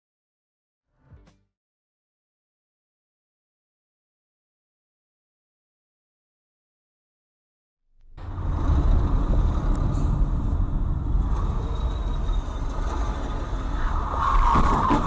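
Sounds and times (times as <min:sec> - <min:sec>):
engine and road rumble: 0:08.0 - 0:15.0.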